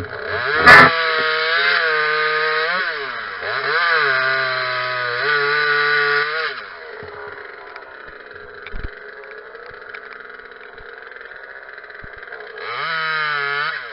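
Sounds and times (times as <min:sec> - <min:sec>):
chainsaw revving and idling: 0:00.0 - 0:13.9.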